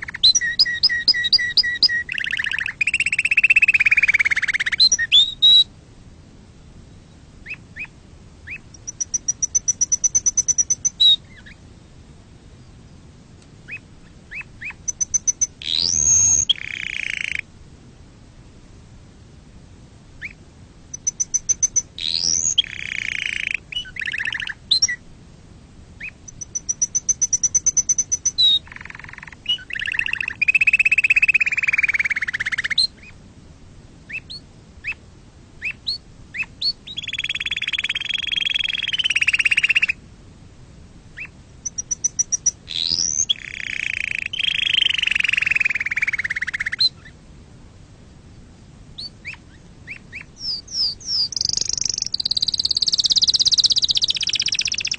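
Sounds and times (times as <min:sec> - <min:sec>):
canary singing: 0:00.0 - 0:05.7, 0:07.4 - 0:11.6, 0:13.7 - 0:17.5, 0:20.2 - 0:25.0, 0:26.0 - 0:33.2, 0:35.6 - 0:40.0, 0:41.2 - 0:47.1, 0:49.0 - 0:54.9.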